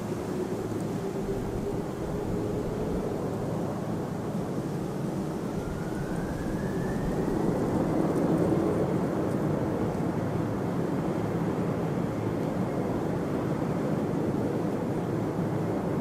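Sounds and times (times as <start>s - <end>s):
faint rising engine whine: 0.0s - 11.6s.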